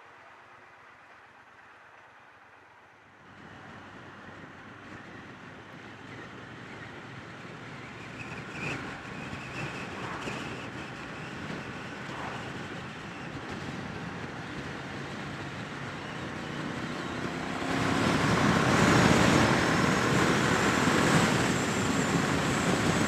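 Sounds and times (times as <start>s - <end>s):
wind and road noise: 0.0s - 23.0s
motorcycle engine under way: 5.0s - 23.0s.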